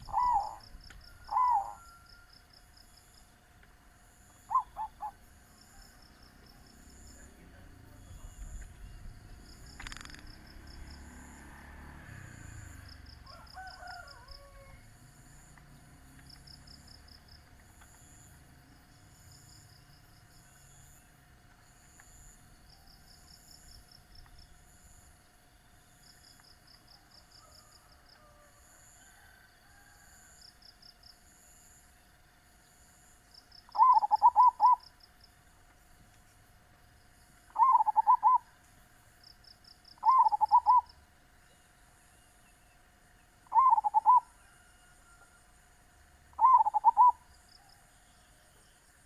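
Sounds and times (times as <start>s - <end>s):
dove cooing: 0.0s - 2.3s, 4.3s - 5.8s, 33.7s - 34.9s, 37.5s - 38.5s, 40.0s - 41.0s, 43.4s - 44.9s, 46.3s - 47.3s
faint steady hum: 0.0s - 49.0s
insects chirping in trills: 0.0s - 49.0s.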